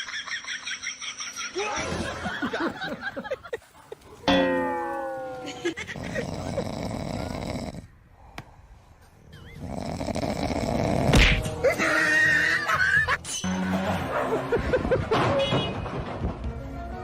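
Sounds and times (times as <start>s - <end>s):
person snoring: 6.0s - 7.9s, 9.6s - 11.2s.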